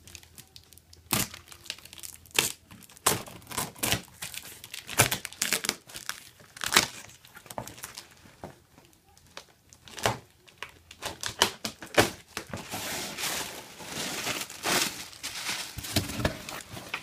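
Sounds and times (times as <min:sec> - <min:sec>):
cardboard crinkling and rustling: 0:00.0 - 0:17.0.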